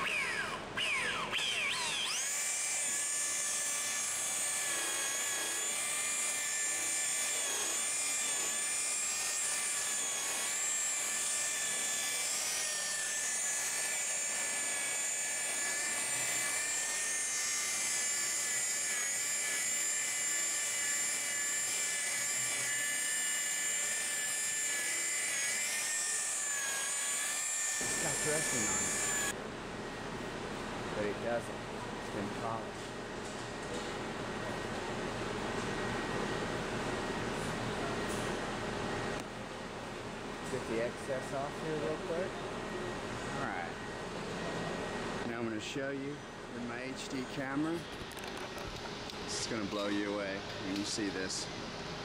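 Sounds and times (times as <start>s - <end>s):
electric polisher whining: 0.0s - 29.4s.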